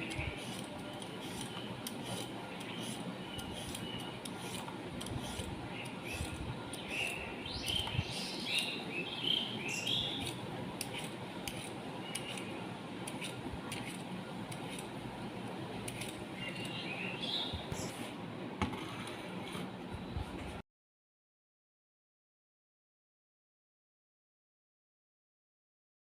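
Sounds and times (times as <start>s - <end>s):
birds chirping: 0.0s - 13.4s, 15.9s - 18.1s.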